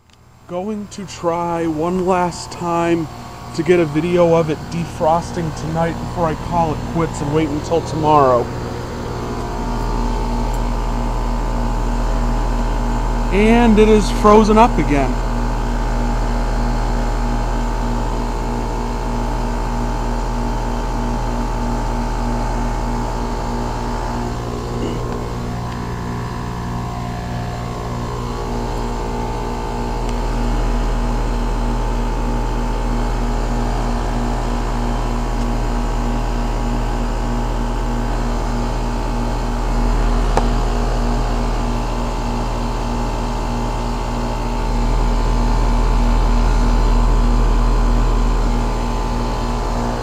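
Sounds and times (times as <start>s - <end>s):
compressor hum: 0.0s - 50.0s
condenser fan: 0.0s - 50.0s.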